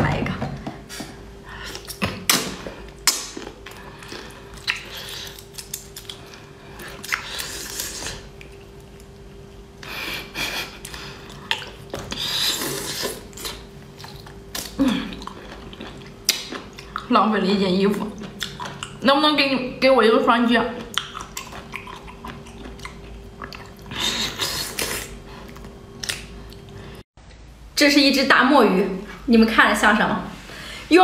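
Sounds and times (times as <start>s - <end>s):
faint steady hum: 0.0s - 31.0s
wet chewing and sucking: 1.6s - 9.1s, 10.8s - 17.1s, 18.0s - 19.0s, 20.8s - 26.9s.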